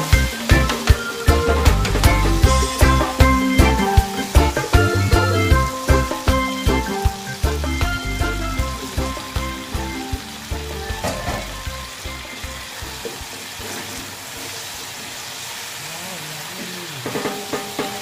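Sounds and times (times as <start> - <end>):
background music: 0.0 - 13.7
food sizzling in a wok: 0.0 - 18.0.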